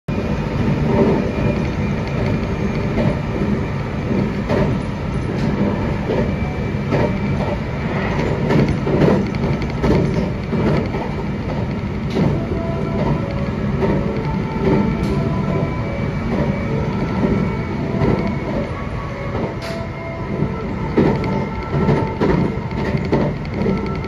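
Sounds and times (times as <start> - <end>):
electric train rumble: 0.1 - 24.0
wheels clicking over rail joints: 8.3 - 15.7, 20.8 - 24.0.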